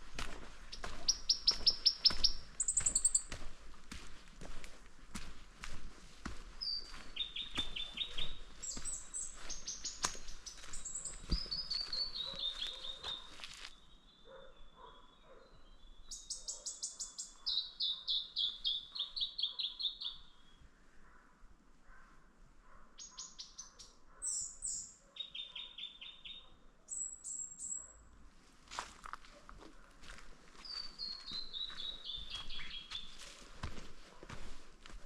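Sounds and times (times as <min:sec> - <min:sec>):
songbirds singing: 0:00.0 - 0:03.6, 0:04.4 - 0:21.2, 0:23.0 - 0:28.0, 0:29.8 - 0:34.4
footsteps clicking on track: 0:00.0 - 0:13.7, 0:28.8 - 0:35.0.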